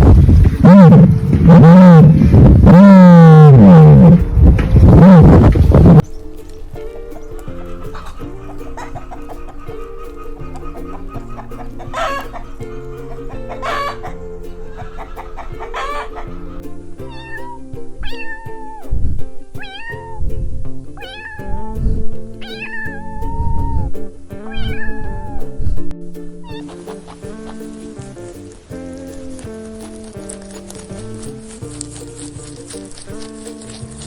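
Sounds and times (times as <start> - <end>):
background music: 0.4 - 34.0
cat meowing: 17.1 - 18.8, 19.6 - 20.2, 21.0 - 21.8, 22.4 - 23.9, 24.5 - 25.4, 26.4 - 27.1.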